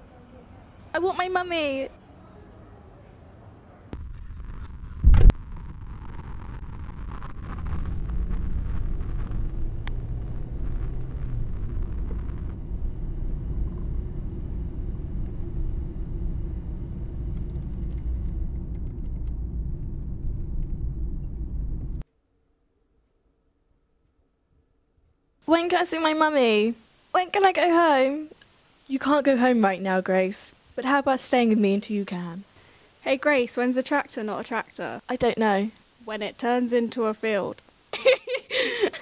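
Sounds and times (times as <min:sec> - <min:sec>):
loud thump: 0:04.0 - 0:05.4
car driving rumble: 0:04.0 - 0:22.0.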